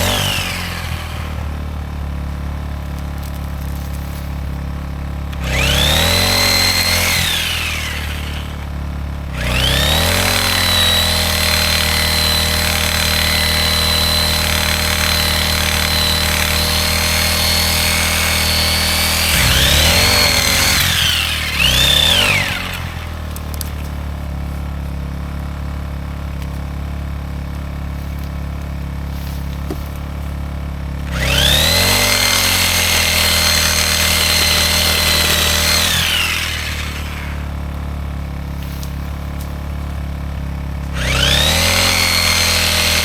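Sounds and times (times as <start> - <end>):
reciprocating saw cutting wood: 0.0 - 1.7, 5.3 - 24.1, 31.0 - 37.8, 40.9 - 43.0
generator humming: 0.0 - 43.0.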